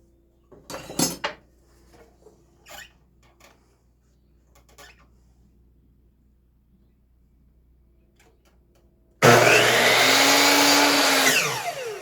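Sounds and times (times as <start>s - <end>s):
electric power saw running: 9.2s - 12.0s.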